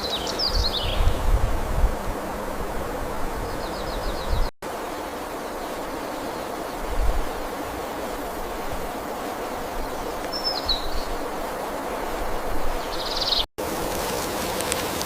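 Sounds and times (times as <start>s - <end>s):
forest ambience hiss: 0.0s - 15.0s
bird chirps: 12.8s - 13.5s.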